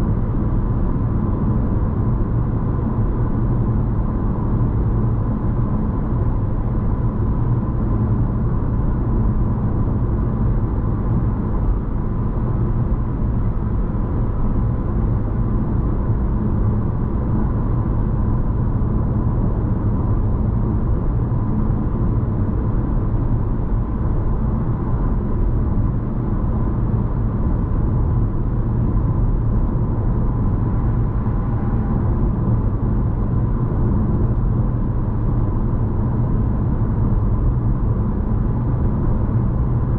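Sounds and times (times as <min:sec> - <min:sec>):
car cabin road drone: 0:00.0 - 0:39.9
faint constant whine: 0:00.0 - 0:39.9.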